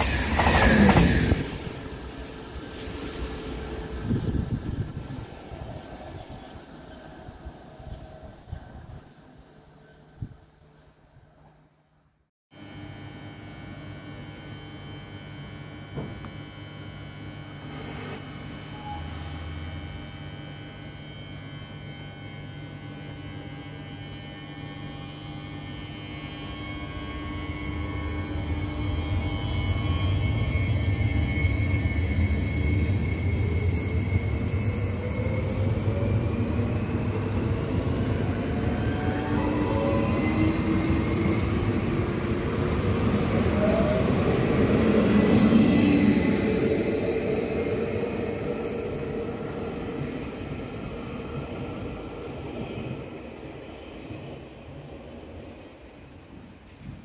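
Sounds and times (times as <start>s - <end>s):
train wheel rumble: 0.0s - 9.0s.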